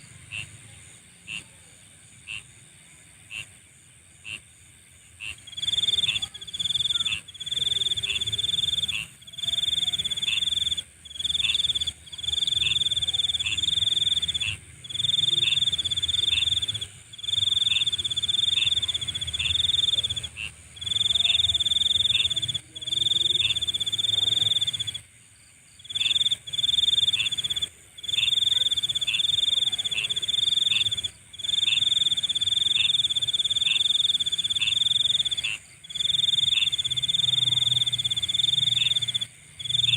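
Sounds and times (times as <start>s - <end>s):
high insect drone: 3.3s - 39.9s
insect pulsing trill: 5.2s - 25.0s, 25.8s - 39.9s
insect chirps dropping in pitch: 5.4s - 25.0s.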